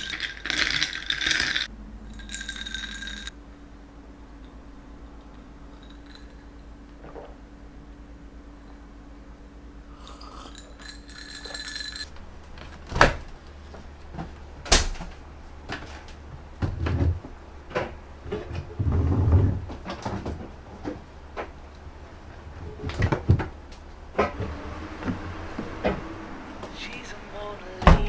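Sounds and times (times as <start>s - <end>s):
low hum: 0.0s - 28.0s
dull thumps: 27.8s - 28.0s.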